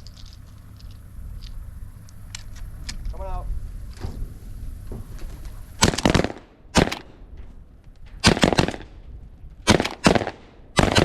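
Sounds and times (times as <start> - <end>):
shotgun shots: 5.3 - 7.3, 8.2 - 9.0, 9.6 - 11.0.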